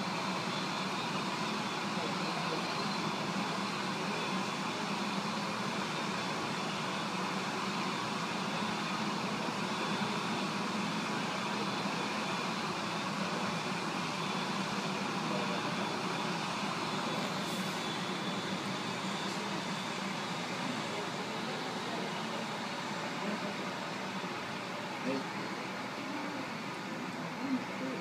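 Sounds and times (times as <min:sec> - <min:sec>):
mechanical drone with high whine: 0:00.0 - 0:21.6.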